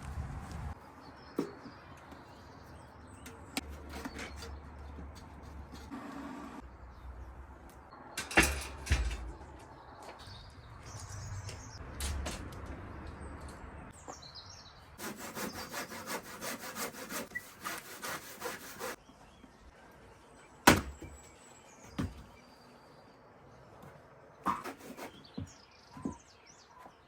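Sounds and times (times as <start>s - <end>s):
hand saw strokes on wood: 15.0s - 19.0s, 24.5s - 25.5s.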